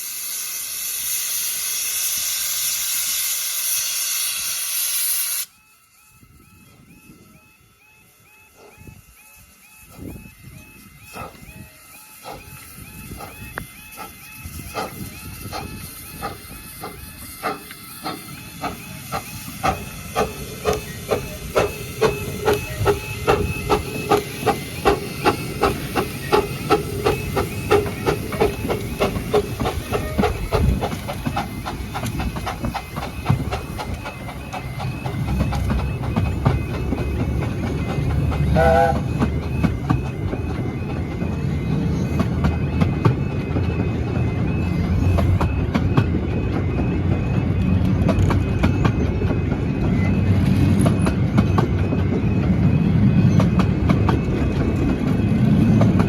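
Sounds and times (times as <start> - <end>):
steam hiss: 0.0 - 5.6, 11.0 - 35.6
steam locomotive exhaust chuffs: 0.0 - 56.0
train wheels rumbling: 6.3 - 56.0
train whistle toot: 38.5 - 39.2.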